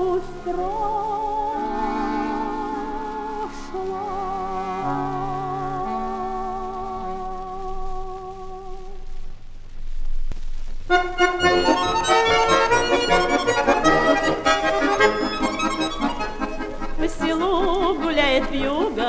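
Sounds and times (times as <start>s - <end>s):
accordion-led folk band: 1.5s - 3.7s, 10.9s - 19.0s.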